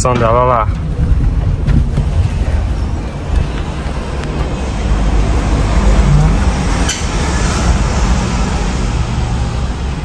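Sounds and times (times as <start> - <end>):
sharp click: 6.8 - 7.2.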